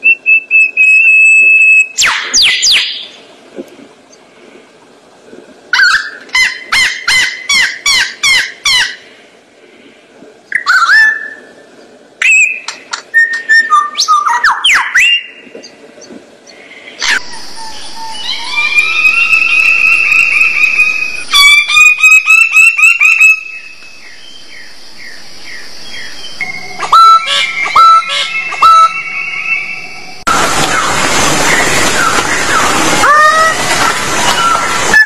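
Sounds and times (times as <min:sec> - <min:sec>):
steady hiss: 0:03.0 - 0:06.8, 0:08.2 - 0:10.5, 0:15.3 - 0:35.0
bird whistles and clicks: 0:12.2 - 0:15.8.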